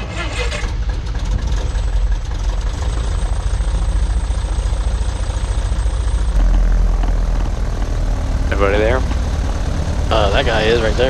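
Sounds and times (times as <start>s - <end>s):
airplane piston engine idling: 0.0s - 11.0s.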